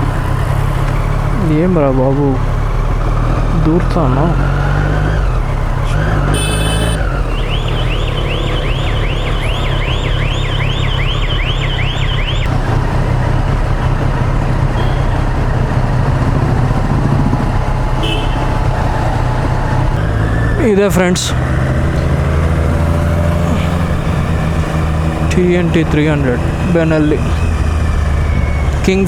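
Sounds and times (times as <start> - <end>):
motorcycle engine and wind rumble: 0.0 - 29.0
electronic siren warbling: 5.9 - 12.5, 14.7 - 20.8, 21.4 - 29.0
horn blast: 5.9 - 12.7, 14.7 - 19.4.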